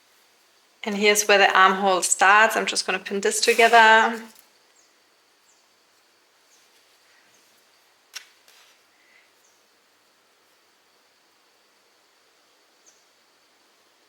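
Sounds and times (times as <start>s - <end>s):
fabric rustling: 3.2s - 4.4s.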